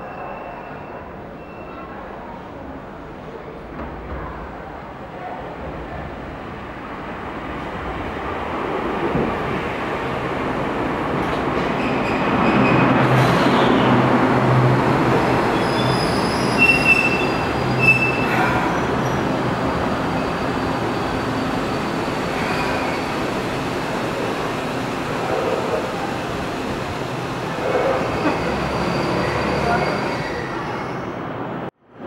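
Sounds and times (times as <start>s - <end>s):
train wheels squealing: 0.0s - 2.0s, 11.8s - 13.5s, 15.6s - 19.2s, 22.3s - 23.1s, 28.0s - 31.2s
electric train rumbling: 2.0s - 31.7s.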